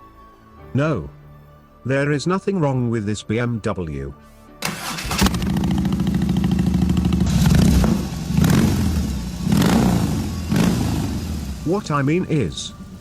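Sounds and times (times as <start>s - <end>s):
motorcycle engine starting and revving: 4.6s - 13.0s.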